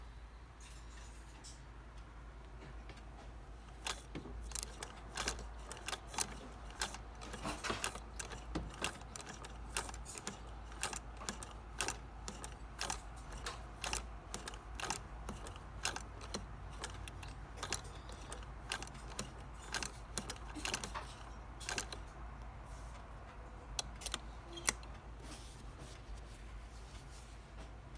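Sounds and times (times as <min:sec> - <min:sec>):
sewing machine metallic clicking: 0:03.6 - 0:25.0.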